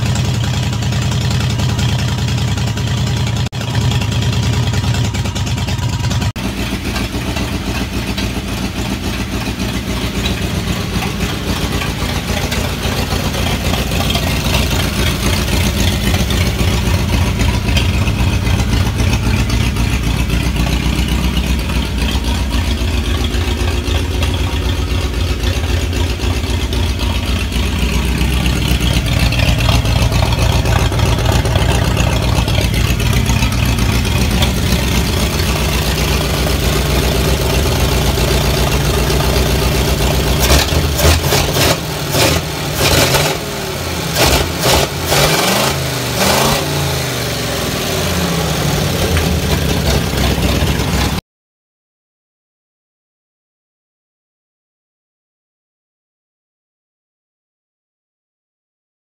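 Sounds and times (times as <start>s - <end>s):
engine idling: 0.0s - 51.2s
engine sharp pops: 6.1s - 43.5s, 48.8s - 51.2s.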